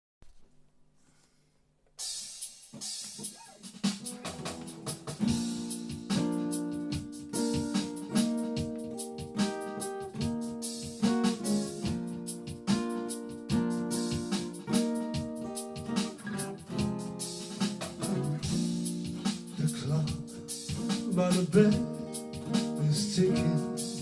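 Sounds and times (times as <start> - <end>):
slow soul-country song: 18.1 - 24.0.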